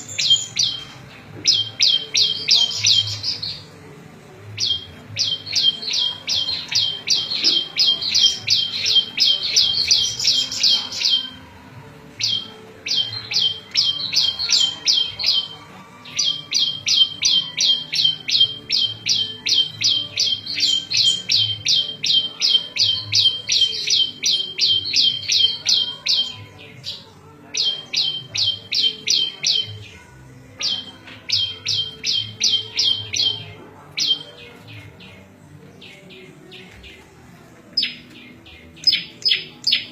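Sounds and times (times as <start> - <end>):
bird singing sharp high chirps: 0.0 - 3.7, 4.6 - 11.4, 12.2 - 27.0, 27.6 - 29.9, 30.6 - 35.1, 37.8 - 39.9.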